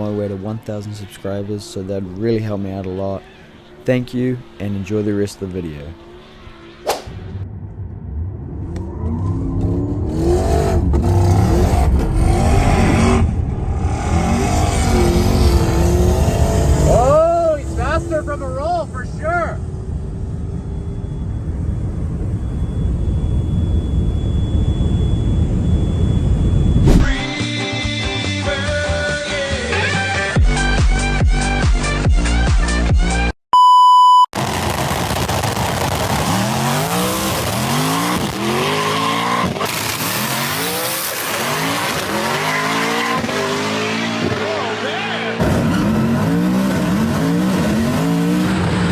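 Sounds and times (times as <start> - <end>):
car engine revving: 1.3 - 22.8, 34.4 - 48.9
low vehicle rumble: 4.4 - 27.3
faint high whine: 17.8 - 27.2.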